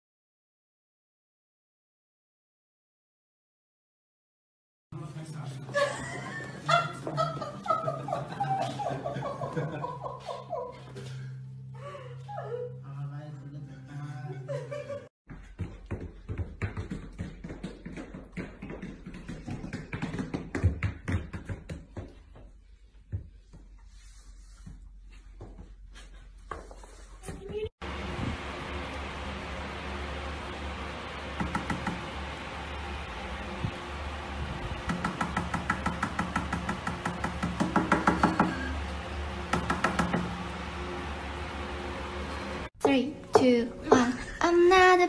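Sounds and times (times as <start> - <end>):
dog paws tapping on hard floor: 15.4 - 22.5.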